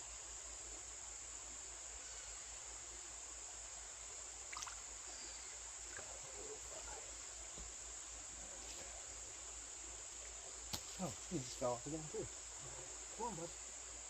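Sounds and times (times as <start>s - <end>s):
crickets chirping: 0.0s - 14.0s
flowing creek: 0.0s - 14.0s
faint light sounds: 4.5s - 13.7s.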